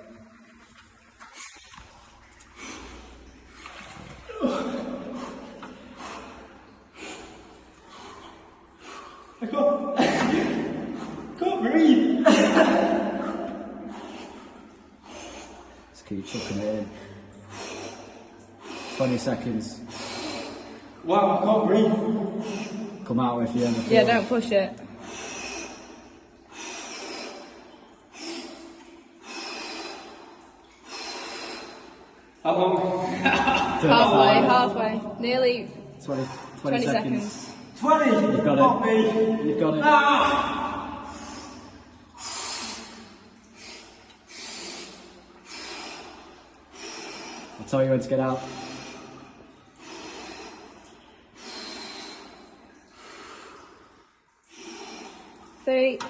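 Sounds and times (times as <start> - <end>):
man breathing heavily: 13.3 - 19.2, 25.0 - 32.1, 41.0 - 47.6, 48.4 - 55.5.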